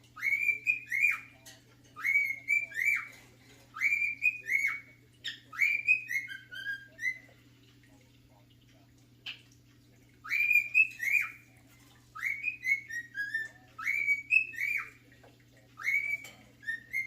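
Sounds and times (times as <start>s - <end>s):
faint steady hum: 0.0s - 17.0s
cockatiel whistling a tune: 0.2s - 1.3s, 2.0s - 3.1s, 3.7s - 7.3s, 10.2s - 11.4s, 12.2s - 14.9s, 15.8s - 17.0s.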